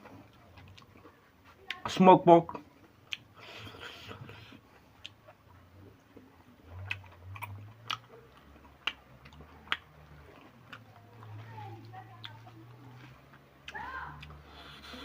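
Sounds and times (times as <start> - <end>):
person chewing: 0.0 - 1.8, 2.5 - 11.4
wet mouth clicks and smacks: 6.8 - 10.8.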